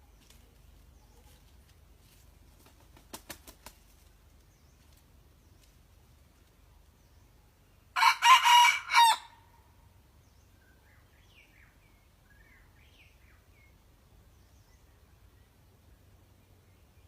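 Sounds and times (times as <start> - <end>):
rooster crowing: 8.0 - 9.4.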